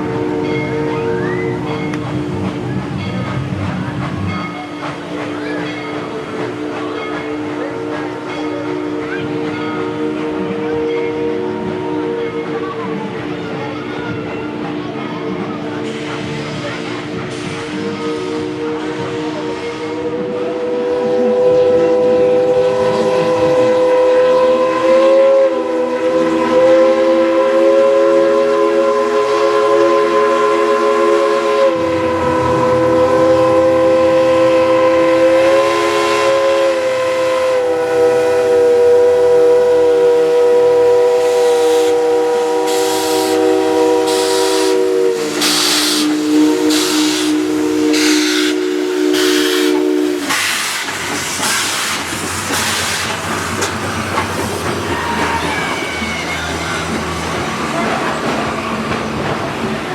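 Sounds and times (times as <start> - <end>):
steam locomotive chime whistle: 0.0 - 3.4, 4.2 - 13.0, 17.4 - 53.2
locomotive exhaust chuffs: 15.8 - 59.8.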